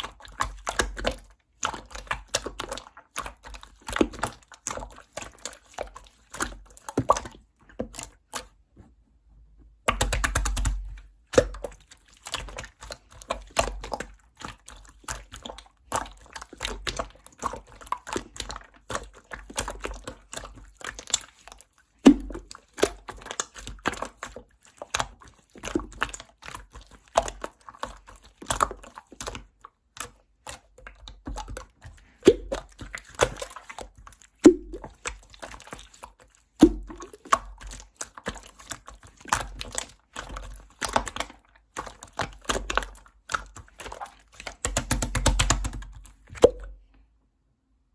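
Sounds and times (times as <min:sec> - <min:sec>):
slime squishing: 0:00.0 - 0:09.0, 0:09.7 - 0:46.9
slime crackling and popping: 0:09.9 - 0:26.3, 0:30.5 - 0:46.6.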